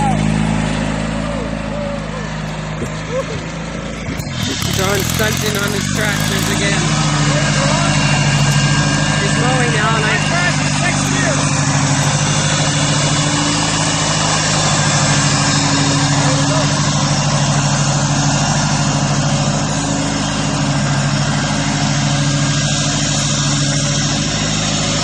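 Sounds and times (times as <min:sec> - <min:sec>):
garden tractor engine mowing: 0:00.2 - 0:25.0.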